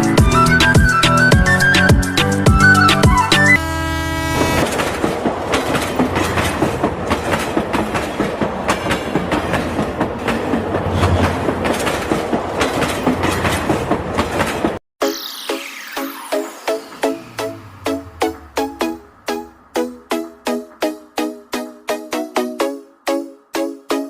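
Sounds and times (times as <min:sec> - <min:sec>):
train horn: 0:03.6 - 0:04.8
train wheels clickety-clack: 0:04.6 - 0:14.8.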